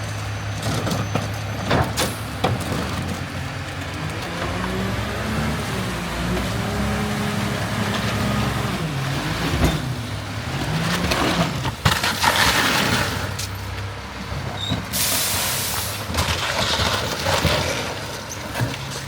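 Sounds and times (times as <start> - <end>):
garbage truck diesel engine: 0.0 - 19.0
loud air hiss: 15.0 - 16.0.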